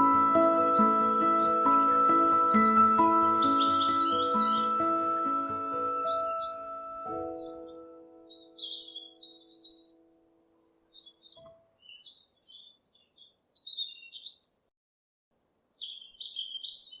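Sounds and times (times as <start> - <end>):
soft music: 0.0 - 10.8
songbirds chirping: 0.0 - 14.7, 15.3 - 17.0.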